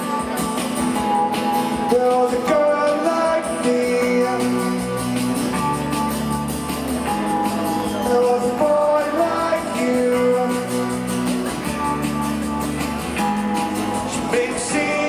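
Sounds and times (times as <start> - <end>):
guitars: 0.0 - 15.0
rock band playing: 0.0 - 15.0.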